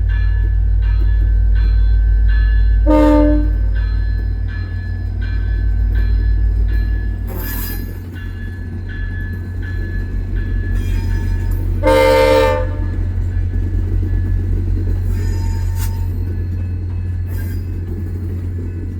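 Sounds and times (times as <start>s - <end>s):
diesel locomotive rumbling: 0.0s - 18.9s
locomotive bell ringing: 0.0s - 18.9s
locomotive horn blast: 2.8s - 3.7s, 10.8s - 13.2s.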